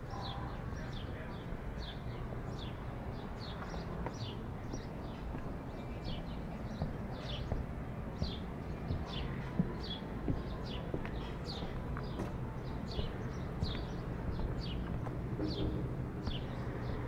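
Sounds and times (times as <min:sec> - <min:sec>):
low outdoor rumble: 0:00.0 - 0:17.0
small birds chirping: 0:00.0 - 0:17.0
footsteps: 0:03.6 - 0:16.7.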